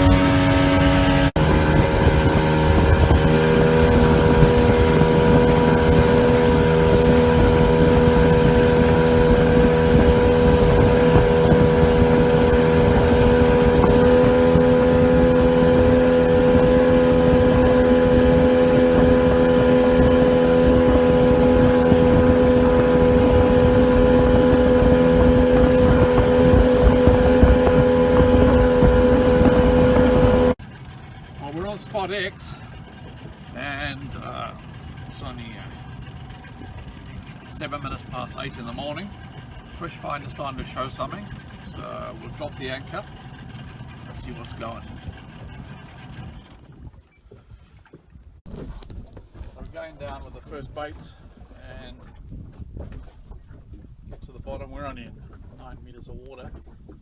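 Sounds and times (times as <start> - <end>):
hull and wind rushing: 0.0 - 30.6, 48.4 - 57.0
outboard motor running: 0.0 - 57.0.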